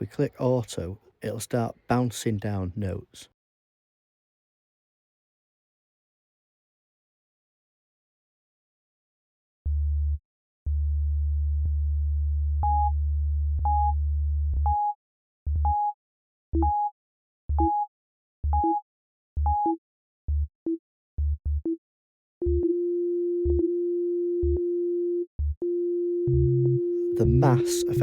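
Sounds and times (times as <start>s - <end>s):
synth sine tones: 22.4s - 28.0s.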